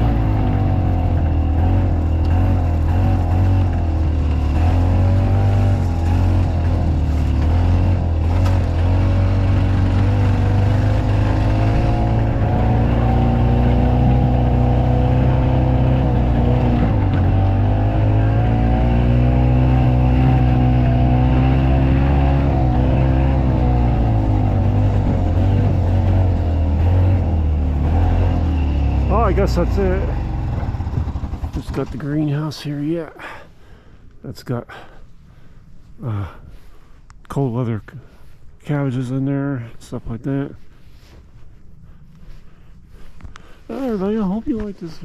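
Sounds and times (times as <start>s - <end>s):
golf car engine running: 0.0s - 32.5s.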